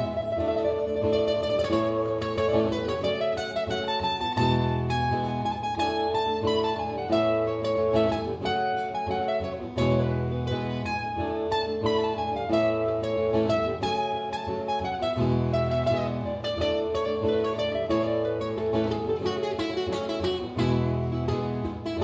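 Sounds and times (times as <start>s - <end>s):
plucked acoustic string instrument: 0.0s - 22.0s.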